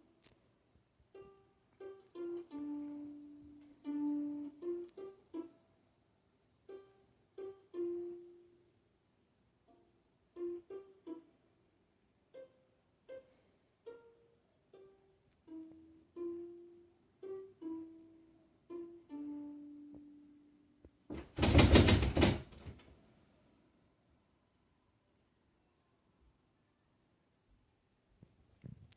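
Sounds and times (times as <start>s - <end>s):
ukulele melody: 1.1s - 5.8s, 6.6s - 8.8s, 9.6s - 11.7s, 12.3s - 20.7s.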